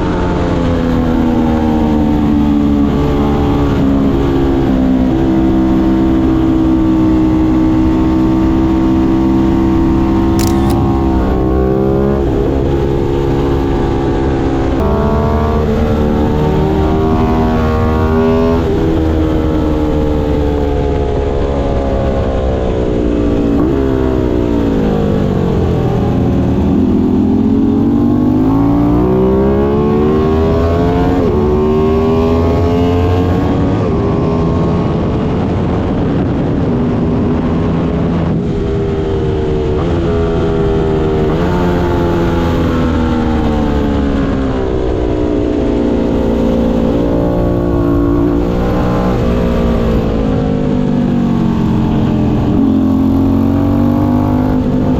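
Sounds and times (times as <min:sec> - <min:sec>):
wind and road noise: 0:00.0 - 0:54.9
motorcycle engine revving: 0:08.4 - 0:34.9, 0:39.6 - 0:54.9.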